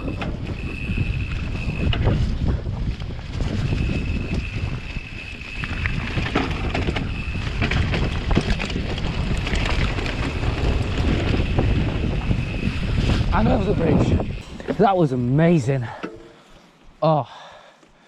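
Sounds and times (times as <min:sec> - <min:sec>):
wind buffeting microphone: 0:00.0 - 0:16.4
bike rattling and knocking: 0:01.2 - 0:13.2
thin high whine: 0:11.2 - 0:16.7.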